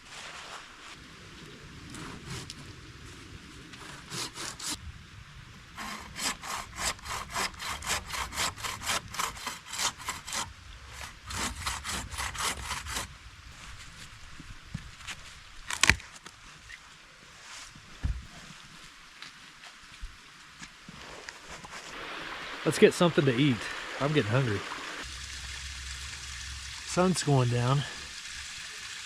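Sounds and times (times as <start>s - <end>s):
hand saw cutting wood: 4.0s - 4.8s, 5.8s - 13.1s.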